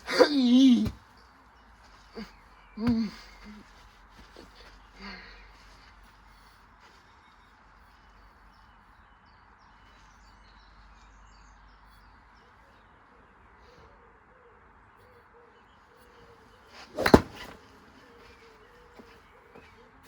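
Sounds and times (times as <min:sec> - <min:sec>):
faint birdsong: 0:00.0 - 0:20.0
golf ball smacking metal: 0:16.8 - 0:17.6.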